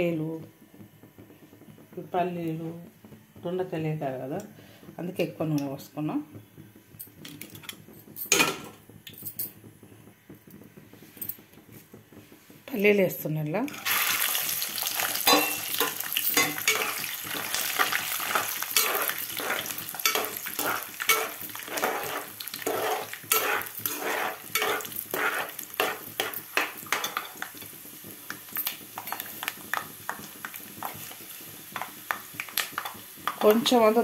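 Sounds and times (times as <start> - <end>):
peanuts sizzling in hot oil: 0.0 - 34.0
metal spatula scraping a pot: 15.3 - 27.4.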